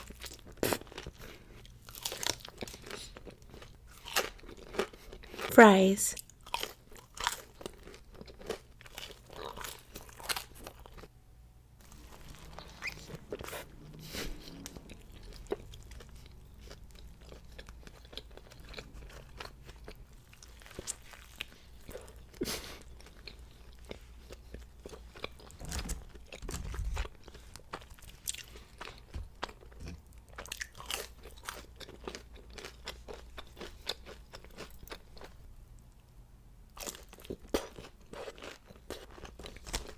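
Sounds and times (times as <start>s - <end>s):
crunchy food crunching: 0.0s - 5.5s, 6.2s - 11.1s, 11.8s - 13.7s, 14.6s - 35.4s, 36.8s - 39.9s
wet chewing: 11.8s - 35.4s.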